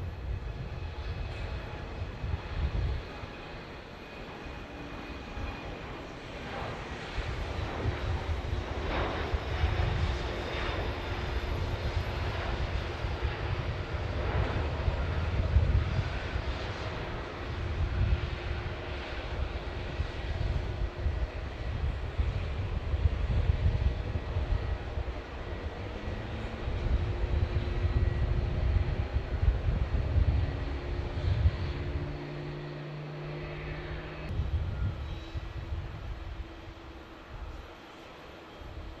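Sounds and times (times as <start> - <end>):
jet airliner engines rumbling: 0.0 - 39.0.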